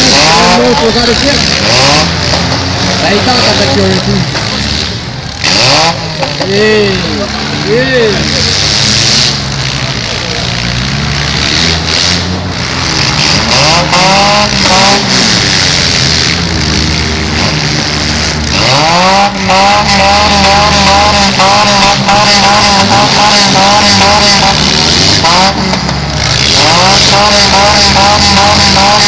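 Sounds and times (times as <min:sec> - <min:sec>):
car engines revving hard: 0:00.0 - 0:29.0.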